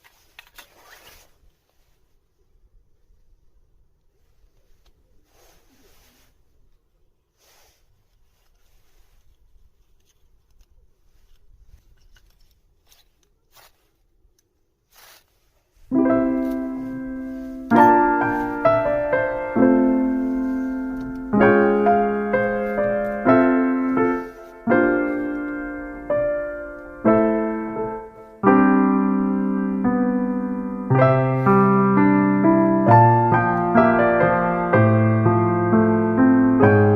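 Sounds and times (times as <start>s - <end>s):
slow piano chords: 15.9s - 36.9s.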